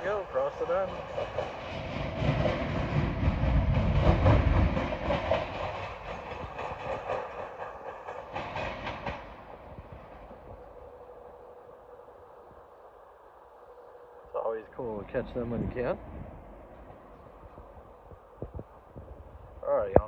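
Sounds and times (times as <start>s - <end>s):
train wheels clattering over rails: 0.0s - 11.8s.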